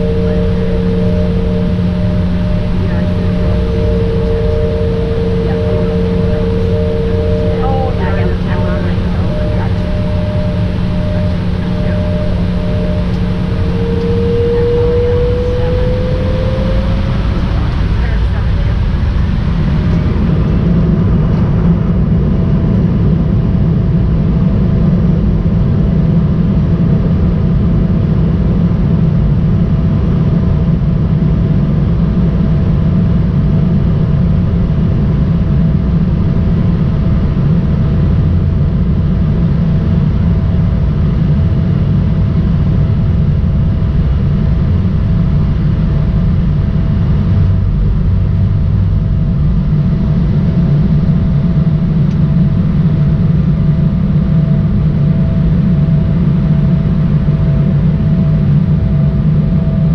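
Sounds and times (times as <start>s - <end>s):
jet cabin low rumble: 0.0s - 59.9s
steady engine tone: 0.0s - 59.9s.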